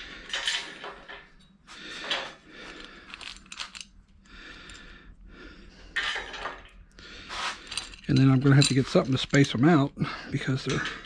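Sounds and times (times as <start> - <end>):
metal hardware clinking and scraping: 0.3 - 3.9, 7.3 - 9.8, 10.4 - 11.0.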